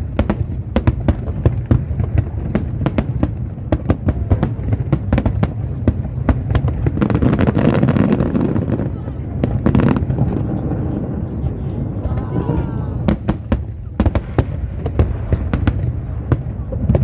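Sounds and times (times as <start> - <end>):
fireworks bangs and cracks: 0.0 - 17.0
low rumble of distant bursts: 0.0 - 17.0.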